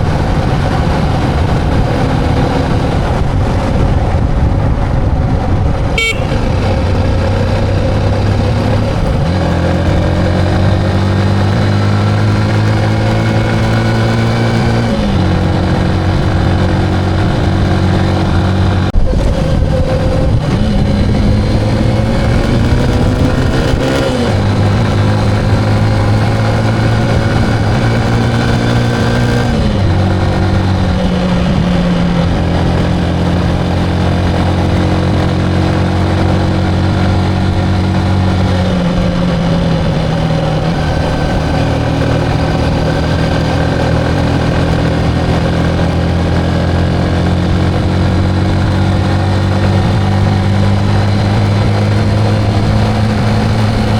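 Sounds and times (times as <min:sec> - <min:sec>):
motorcycle engine shifting gears: 0:00.0 - 0:53.9.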